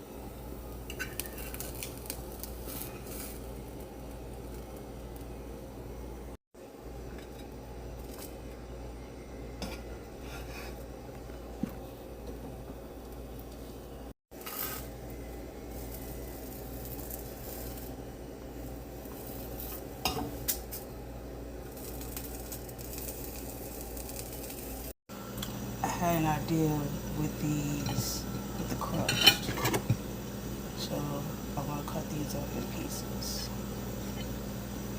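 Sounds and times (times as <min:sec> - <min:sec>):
kitchen utensils and dishes clinking: 0:00.8 - 0:01.9, 0:27.6 - 0:30.1
steady low hum: 0:14.9 - 0:34.9.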